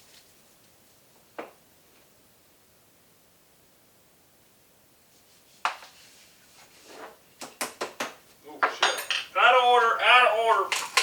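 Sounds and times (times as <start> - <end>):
ringing metal clink: 8.6 - 9.4.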